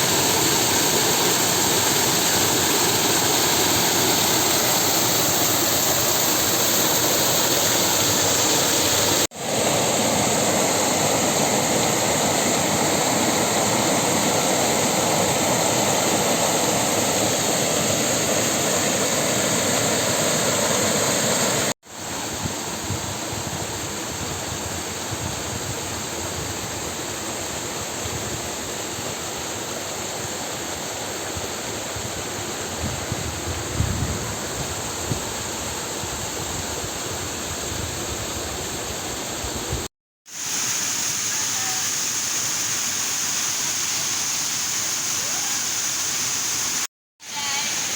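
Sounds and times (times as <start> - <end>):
waterfall and river rushing: 0.0 - 22.8, 40.3 - 47.9.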